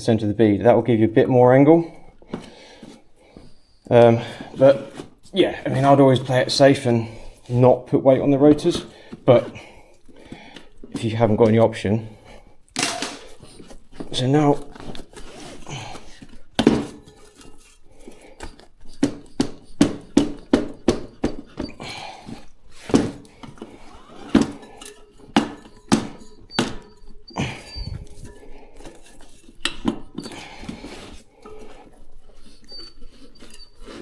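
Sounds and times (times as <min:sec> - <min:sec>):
tyre levers clinking on wheel rim: 0:18.5 - 0:34.0.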